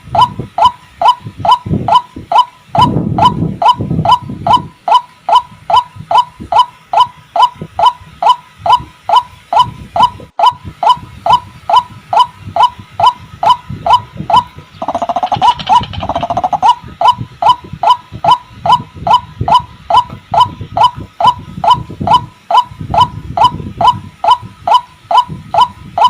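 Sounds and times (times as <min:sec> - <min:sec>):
bird calling hooked notes: 0:12.6 - 0:22.6.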